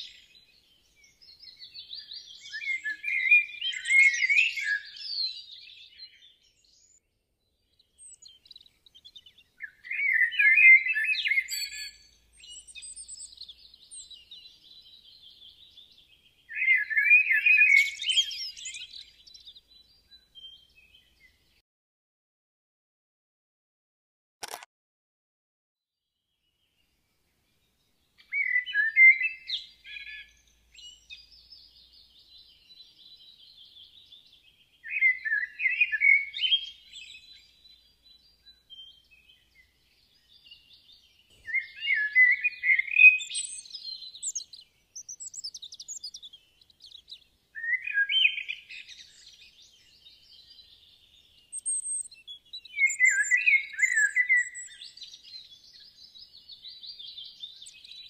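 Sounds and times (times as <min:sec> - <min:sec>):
bird chirping phrases: 0:00.0 - 0:21.6, 0:26.1 - 0:58.0
high bird twittering: 0:51.5 - 0:55.2.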